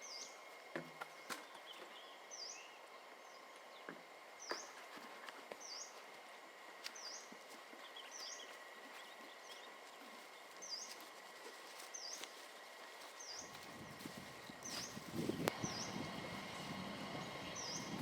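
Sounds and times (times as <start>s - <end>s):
faint steady hum: 0.0s - 18.0s
bird calling: 17.1s - 18.0s.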